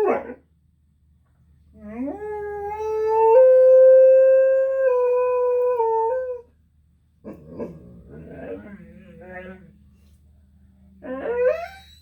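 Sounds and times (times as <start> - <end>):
dog howling: 11.0 - 11.9.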